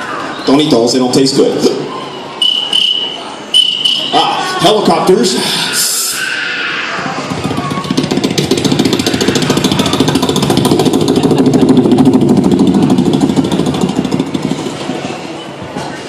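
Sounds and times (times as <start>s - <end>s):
vocal imitation of helicopter: 6.9s - 14.9s.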